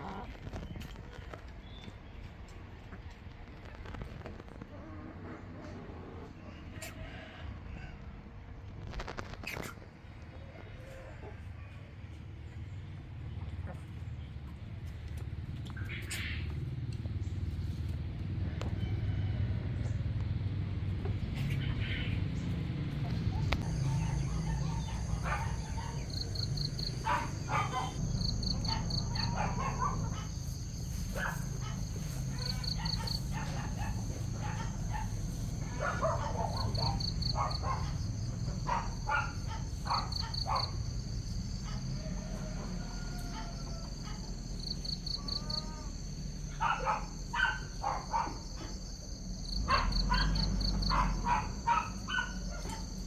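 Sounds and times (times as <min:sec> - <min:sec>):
chickens clucking: 0:00.0 - 0:07.5, 0:20.8 - 0:53.0
high insect drone: 0:23.6 - 0:53.0
insect trills: 0:23.6 - 0:53.0.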